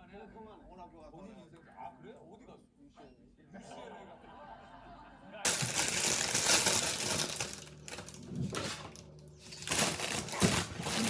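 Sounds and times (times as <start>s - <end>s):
food packaging rustling: 5.5s - 11.0s.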